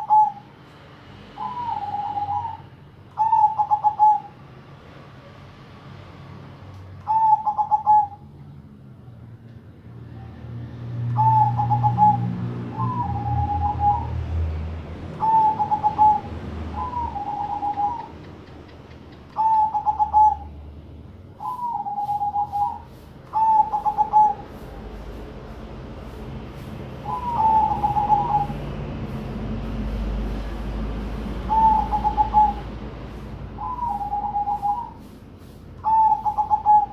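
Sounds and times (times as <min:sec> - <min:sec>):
doves cooing: 0:01.4 - 0:02.6, 0:03.2 - 0:04.3, 0:07.1 - 0:08.2, 0:11.1 - 0:14.2, 0:15.2 - 0:20.5, 0:21.4 - 0:24.9, 0:27.0 - 0:28.8, 0:31.3 - 0:32.8, 0:33.6 - 0:35.1, 0:35.8 - 0:36.9.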